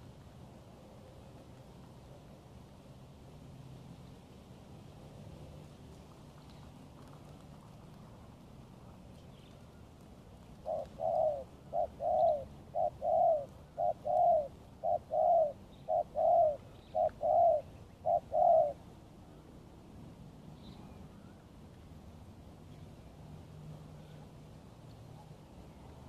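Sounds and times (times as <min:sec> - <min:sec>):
dove cooing: 0:10.5 - 0:18.8.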